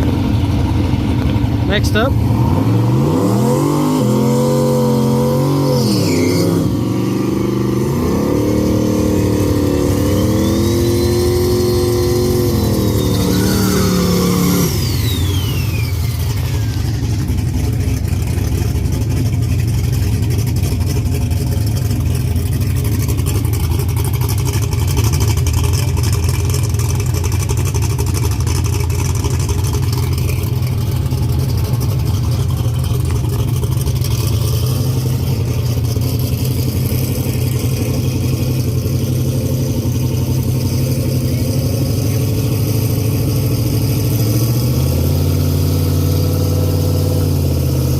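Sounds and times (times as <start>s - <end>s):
race car engine rumbling: 0.0s - 47.9s
high tone falling in pitch: 3.0s - 17.0s.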